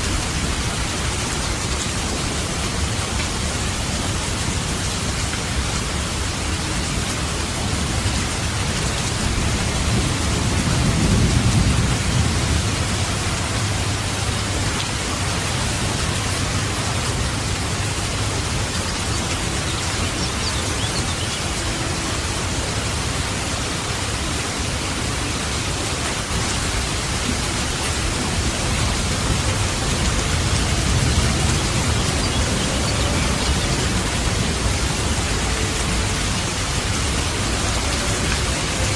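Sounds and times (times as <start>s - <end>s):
steady rain falling: 0.0s - 38.9s
low rolling thunder: 9.7s - 14.0s.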